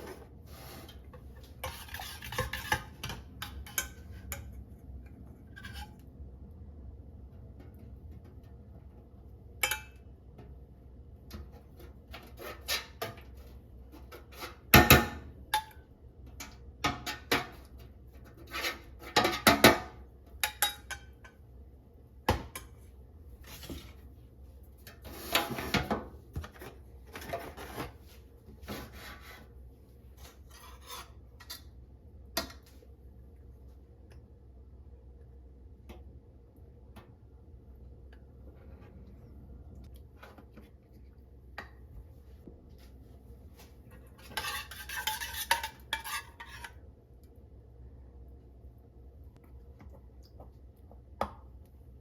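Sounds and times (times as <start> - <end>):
scraping and rubbing: 0.0 - 3.0, 27.3 - 31.2.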